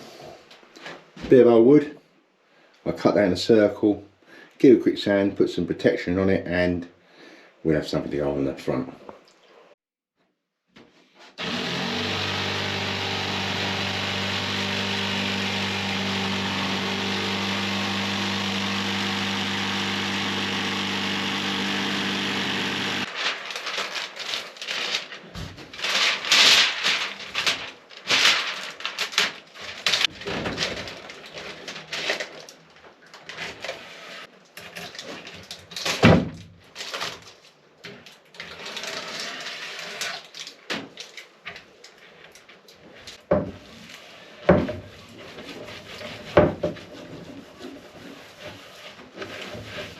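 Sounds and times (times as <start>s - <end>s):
electric power tool on wood: 11.4s - 23.1s
wood and tools knocking and clattering: 30.0s - 31.4s, 43.2s - 43.6s, 44.5s - 44.9s, 45.6s - 48.0s.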